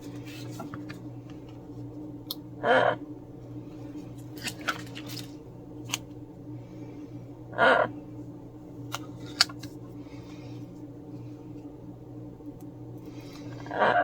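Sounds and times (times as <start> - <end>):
low hum: 0.0 - 14.0
parrot squawking: 2.6 - 3.0, 7.6 - 7.9.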